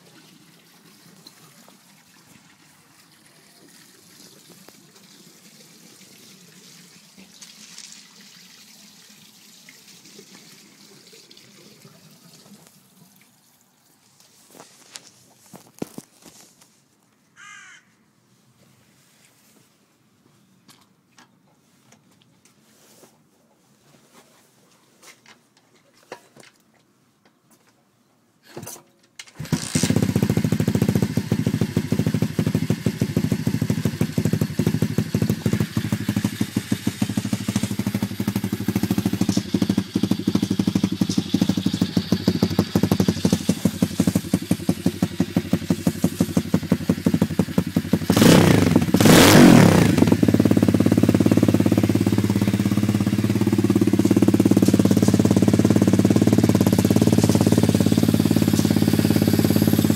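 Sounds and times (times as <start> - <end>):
pit bike engine idling: 29.4 - 59.9.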